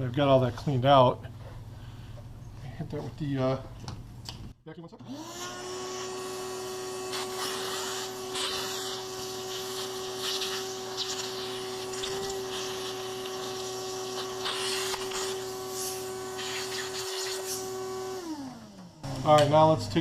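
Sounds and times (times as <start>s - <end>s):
shop vacuum whining: 5.0s - 20.0s.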